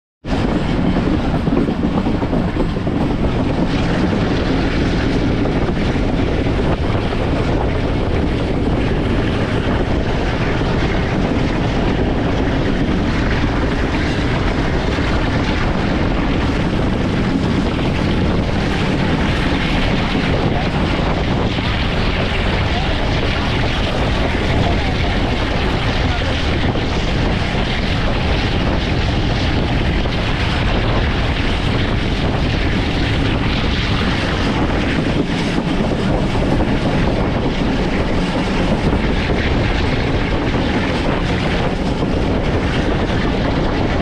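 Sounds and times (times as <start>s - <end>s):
train rumbling at speed: 0.2s - 44.0s.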